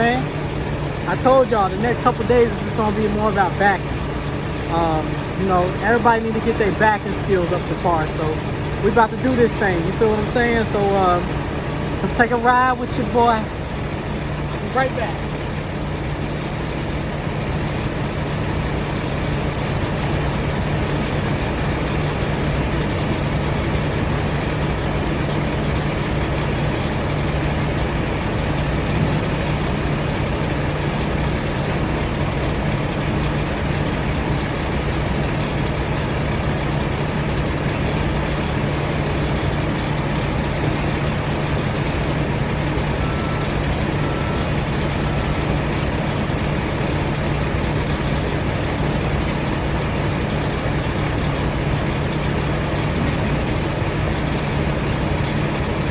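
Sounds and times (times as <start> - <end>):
diesel truck engine idling: 0.0 - 55.9
short faint beeps: 43.0 - 45.4.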